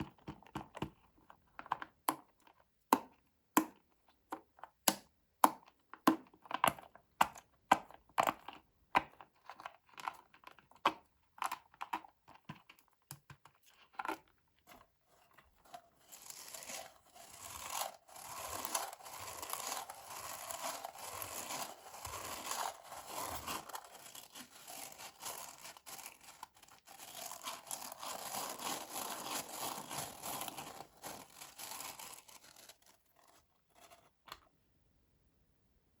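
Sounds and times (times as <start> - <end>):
wrapper tearing and crinkling: 16.0 - 33.4.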